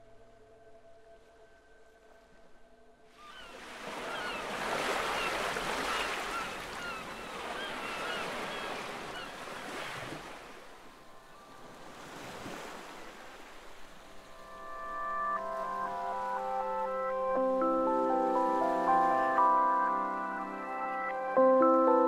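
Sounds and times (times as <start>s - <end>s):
soft sustained music tones: 0.0s - 3.6s, 10.3s - 22.0s
seabirds calling: 3.2s - 21.8s
waves washing onto shore: 3.5s - 10.8s.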